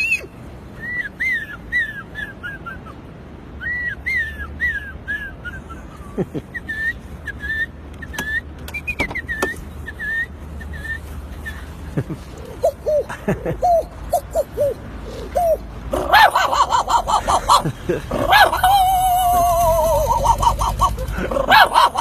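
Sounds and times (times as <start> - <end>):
man whistling birdsong chirps: 3.6 - 5.8, 6.5 - 11.6.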